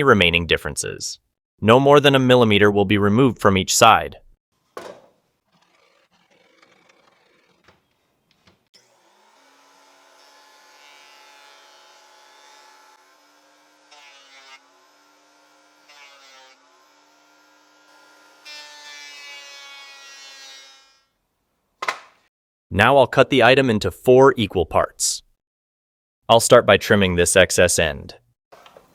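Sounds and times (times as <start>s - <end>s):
thickness planer motor whining: 8.8s - 16.0s.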